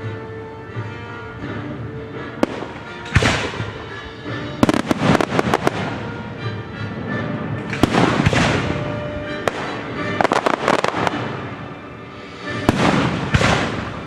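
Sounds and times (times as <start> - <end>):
orchestral music: 0.0 - 14.0
fireworks crackling pops: 2.4 - 4.0, 4.6 - 6.1, 7.6 - 11.4, 12.4 - 14.0
fireworks bangs: 2.4 - 6.6, 7.2 - 14.0.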